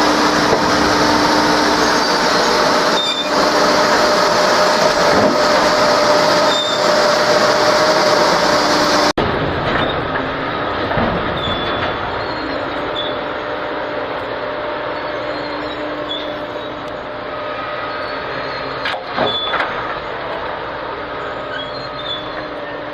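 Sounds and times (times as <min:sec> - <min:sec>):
train cars rolling on rails: 0:00.0 - 0:22.9
faint thin wheel squeals: 0:01.8 - 0:03.4, 0:06.4 - 0:07.0, 0:11.4 - 0:13.6, 0:14.9 - 0:20.2, 0:21.2 - 0:22.9.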